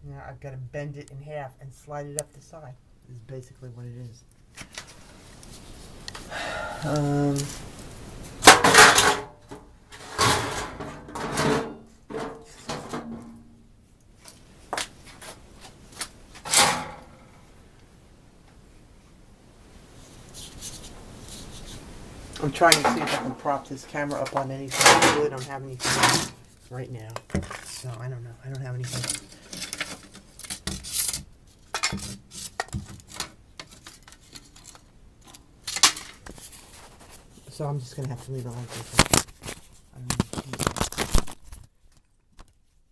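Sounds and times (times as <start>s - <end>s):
plastic filter scraping metal: 8.4s - 13.4s, 22.4s - 26.5s
camera handling rustle: 38.5s - 42.6s.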